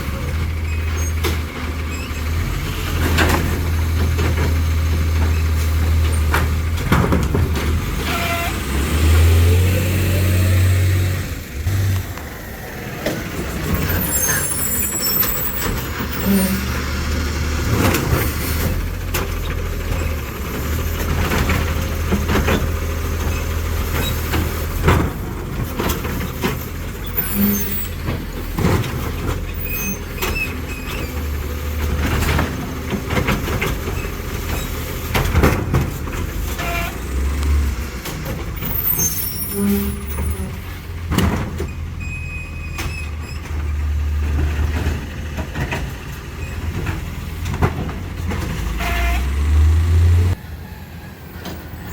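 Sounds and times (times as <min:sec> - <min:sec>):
garbage truck engine running: 0:00.0 - 0:51.9
knocks and clatters: 0:03.0 - 0:08.1, 0:27.9 - 0:36.7, 0:42.8 - 0:48.8.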